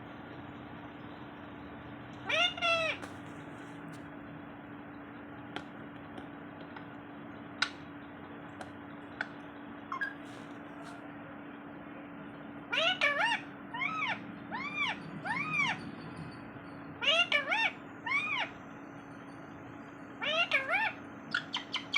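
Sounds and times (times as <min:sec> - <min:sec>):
steady low hum: 0:00.0 - 0:21.9
parrot making meow-like calls: 0:02.2 - 0:03.0, 0:12.7 - 0:15.8, 0:17.0 - 0:18.5, 0:20.2 - 0:21.9.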